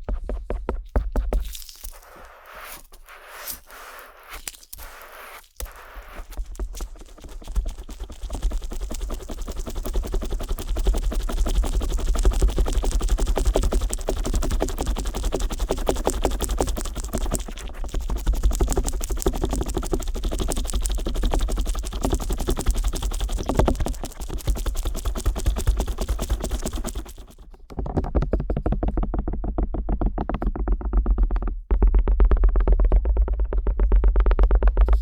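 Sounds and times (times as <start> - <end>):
earpick scratching microphone: 0.8 - 27.7.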